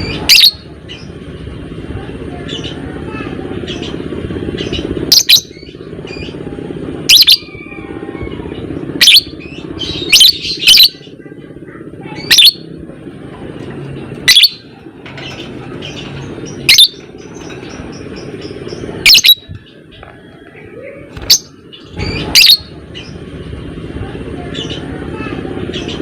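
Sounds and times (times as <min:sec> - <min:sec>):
bird shrill chirping calls: 0:00.0 - 0:01.1, 0:04.6 - 0:06.4, 0:07.1 - 0:11.2, 0:12.1 - 0:12.7, 0:14.2 - 0:19.9, 0:21.2 - 0:23.2
steady low hum: 0:00.0 - 0:26.0.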